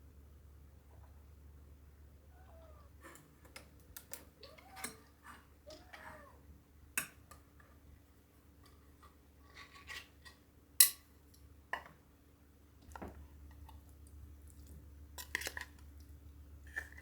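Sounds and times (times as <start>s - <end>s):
cat meowing faintly: 2.2s - 3.1s, 4.4s - 6.5s.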